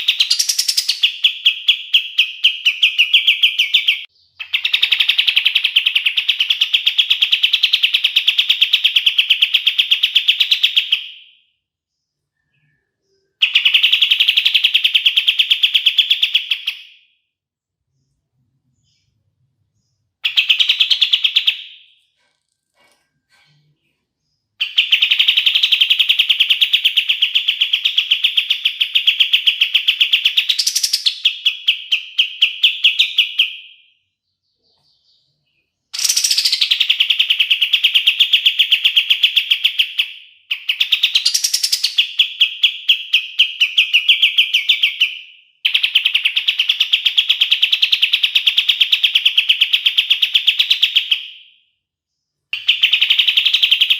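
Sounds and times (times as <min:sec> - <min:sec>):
bird singing rattling trills: 0:00.0 - 0:09.1, 0:34.4 - 0:49.9.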